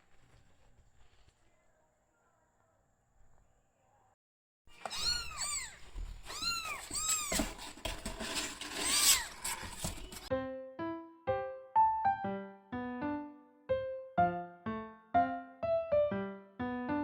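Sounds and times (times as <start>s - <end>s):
knocks and rustling: 4.7s - 10.3s
kittens mewing: 4.8s - 7.8s.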